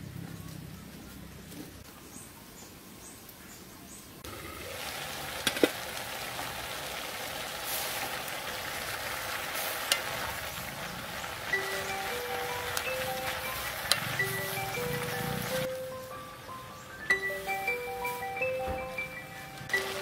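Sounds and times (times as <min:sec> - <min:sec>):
food sizzling in a wok: 0:04.3 - 0:15.7, 0:19.8 - 0:20.0.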